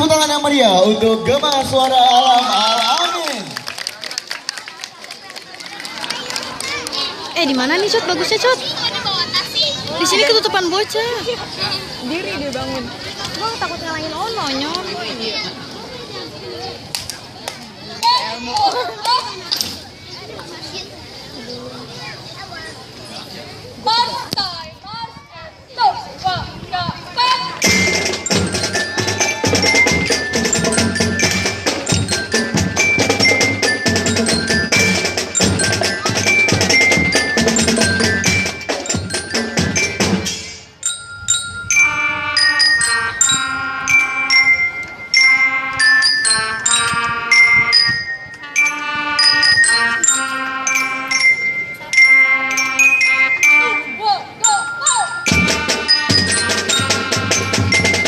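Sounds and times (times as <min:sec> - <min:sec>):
marching band playing: 0:27.4 - 0:58.0
glockenspiel and marimba melody: 0:27.6 - 0:58.0.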